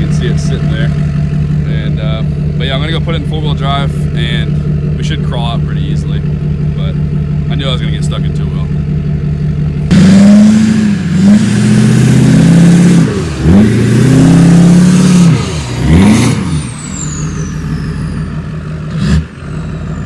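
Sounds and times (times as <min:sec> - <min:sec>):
diesel pickup engine revving: 0:00.0 - 0:20.0
turbo whistle: 0:14.7 - 0:18.6.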